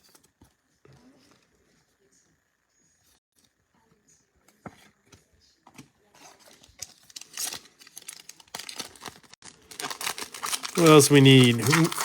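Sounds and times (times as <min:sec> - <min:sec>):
wrapper crinkling and tearing: 0:06.4 - 0:12.0.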